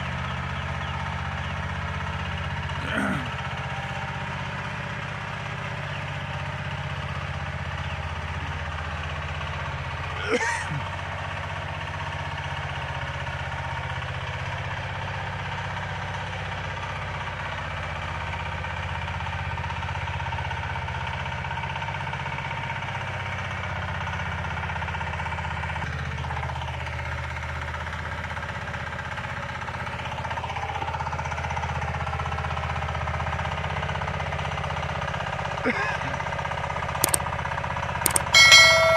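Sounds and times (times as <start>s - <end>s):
tractor engine running: 0.0s - 14.0s, 34.9s - 38.9s.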